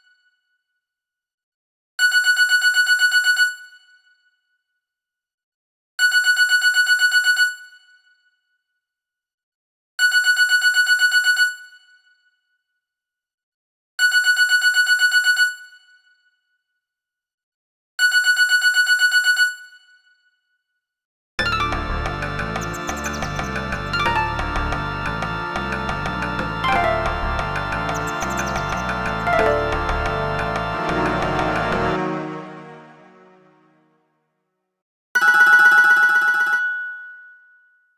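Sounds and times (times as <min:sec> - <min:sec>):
melodic ringtone: 0:21.4 - 0:33.7
phone ringtone telephone bell trill: 0:35.2 - 0:37.1.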